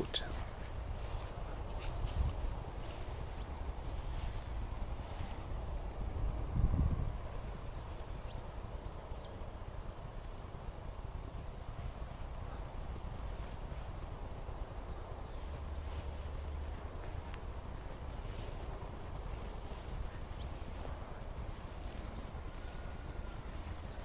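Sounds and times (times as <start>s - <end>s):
low rumble of wind: 0.0s - 24.0s
small birds chirping: 0.0s - 24.0s.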